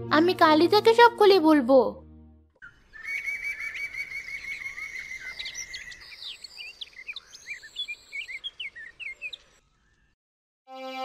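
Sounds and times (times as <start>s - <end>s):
birds chirping: 2.6s - 10.2s.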